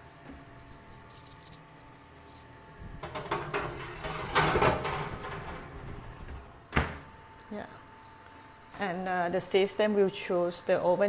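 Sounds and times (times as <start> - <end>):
parts clattering in microwave oven: 2.8 - 7.3.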